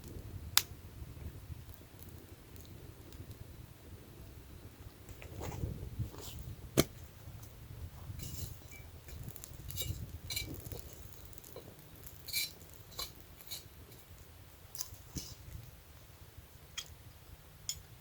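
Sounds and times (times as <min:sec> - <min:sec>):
cookware and utensils clinking: 0:12.3 - 0:14.0.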